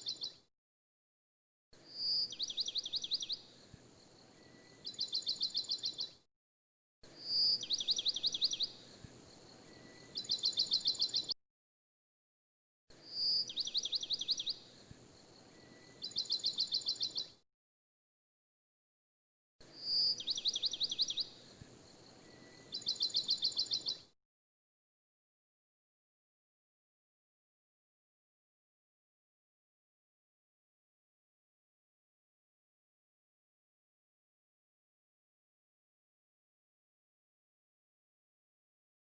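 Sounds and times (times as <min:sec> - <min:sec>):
birdsong whistle and trills: 0:00.0 - 0:00.4, 0:01.8 - 0:06.2, 0:07.1 - 0:11.4, 0:13.0 - 0:17.4, 0:19.7 - 0:24.1.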